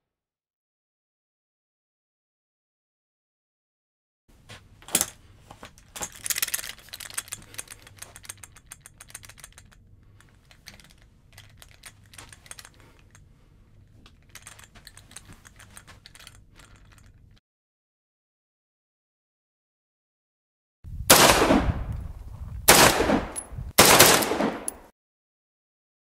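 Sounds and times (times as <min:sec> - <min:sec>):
gun parts rattling and clicking: 0:04.5 - 0:17.4, 0:23.3 - 0:24.8.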